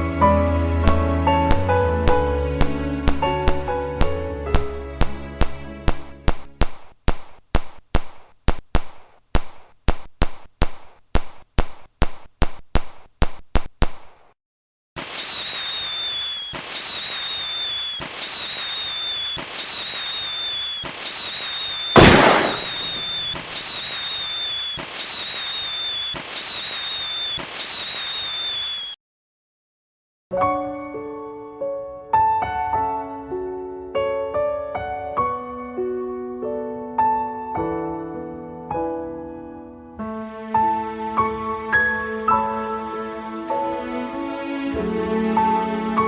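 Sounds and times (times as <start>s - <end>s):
fireworks sharp bangs: 0.9s - 14.3s, 15.0s - 28.8s
falling firework whistle: 15.0s - 29.0s
fireworks crackling hiss: 15.0s - 29.0s.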